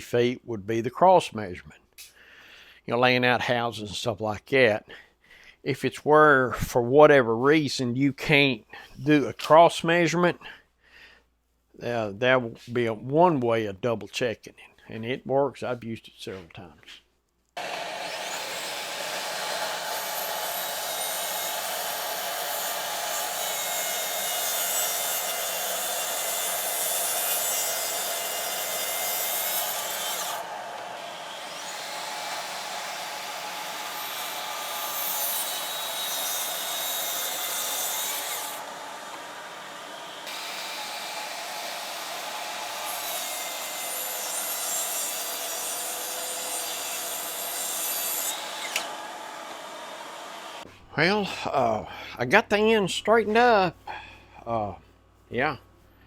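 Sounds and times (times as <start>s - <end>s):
track saw cutting wood: 17.6s - 50.7s.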